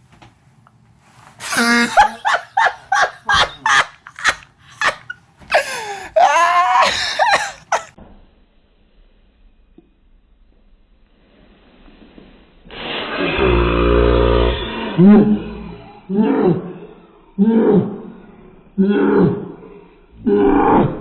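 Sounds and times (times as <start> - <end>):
person laughing hard: 1.4 - 8.0.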